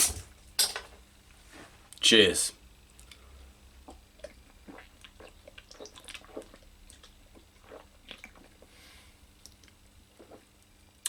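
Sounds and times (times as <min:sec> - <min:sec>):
person gulping and swallowing: 0:03.0 - 0:11.0.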